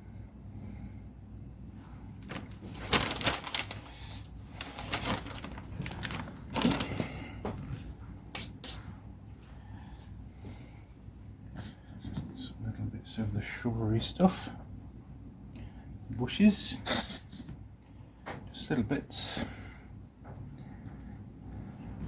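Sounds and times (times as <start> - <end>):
low steady hum: 0.0 - 22.0
hands rustling plastic tubs and bags: 2.1 - 8.5.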